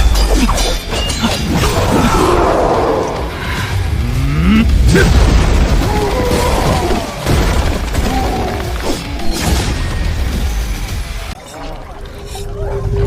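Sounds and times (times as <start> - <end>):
music: 0.0 - 13.0
deep booms and impacts: 2.7 - 8.4
people shouting: 5.8 - 7.4.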